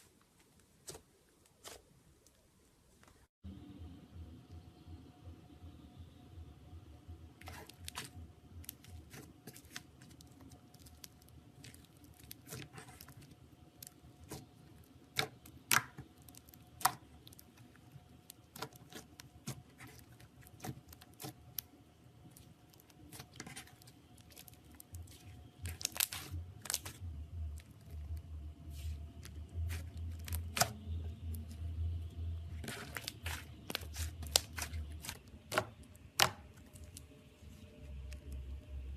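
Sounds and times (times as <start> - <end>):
slime clicking and popping: 15.1 - 17.6.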